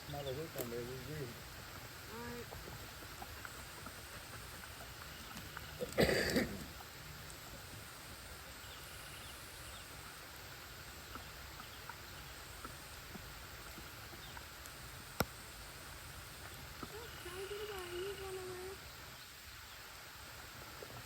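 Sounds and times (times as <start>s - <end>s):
soft hiss: 0.0s - 21.0s
small ticks: 12.6s - 15.4s.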